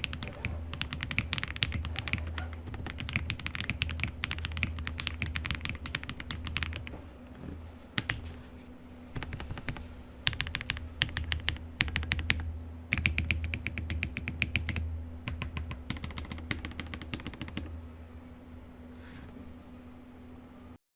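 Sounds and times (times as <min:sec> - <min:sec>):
mechanical keyboard typing: 0:00.0 - 0:07.0, 0:08.0 - 0:08.3, 0:09.2 - 0:17.7
steady low hum: 0:00.0 - 0:20.8.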